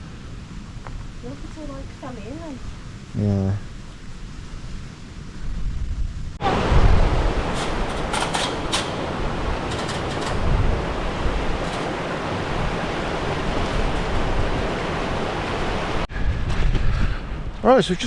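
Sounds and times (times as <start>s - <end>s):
stream water rushing: 10.4s - 16.1s.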